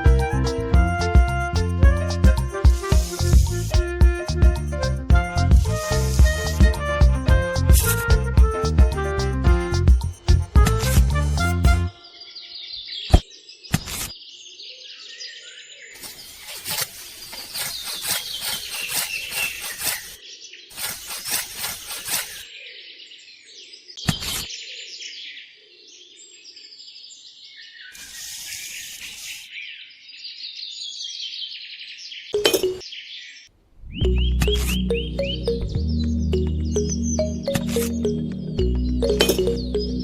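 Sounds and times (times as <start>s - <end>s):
scraping noise: 2.1s - 3.8s, 16.0s - 22.4s
small birds chirping: 11.9s - 40.0s.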